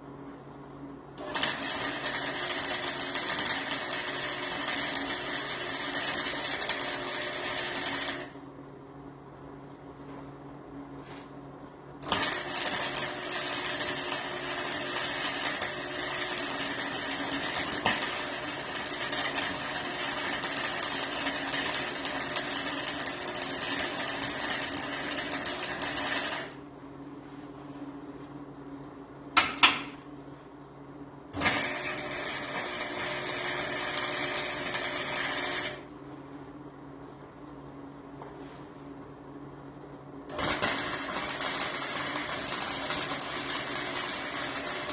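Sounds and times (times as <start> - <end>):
electric arc welding: 1.2 - 8.4, 12.0 - 26.6, 31.4 - 35.9, 40.3 - 44.9.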